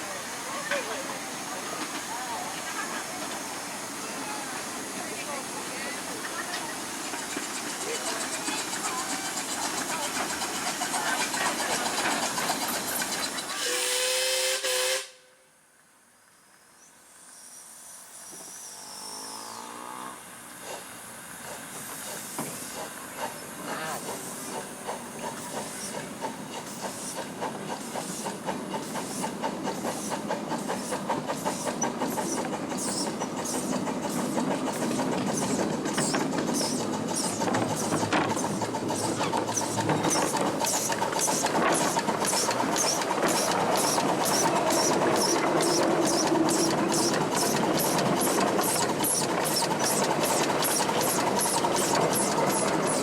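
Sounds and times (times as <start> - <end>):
steam locomotive chuffing: 0.0 - 15.3, 17.2 - 53.0
steam hiss: 0.0 - 15.5, 16.8 - 53.0.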